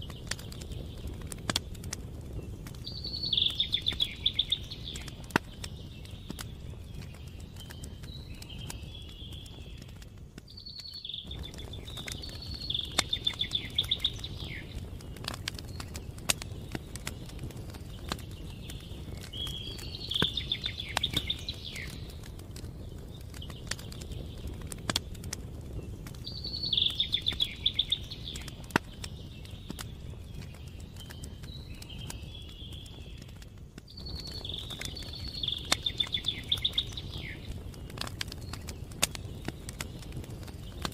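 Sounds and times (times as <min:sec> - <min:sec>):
campfire crackling and popping: 0:00.0 - 0:40.9
songbird trilling: 0:02.9 - 0:05.0, 0:10.6 - 0:14.7, 0:26.3 - 0:28.5, 0:34.0 - 0:37.4.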